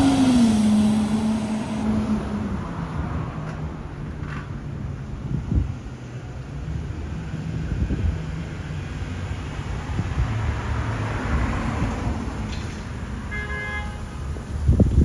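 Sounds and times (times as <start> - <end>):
vehicles rumbling: 0.0 - 15.0
vehicle horn toot: 13.3 - 14.2.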